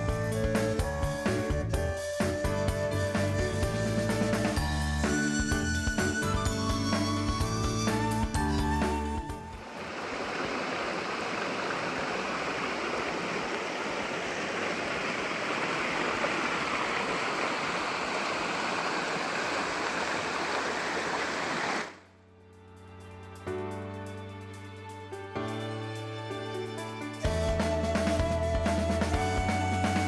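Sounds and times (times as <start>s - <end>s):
stream rushing and splashing: 8.3s - 22.0s.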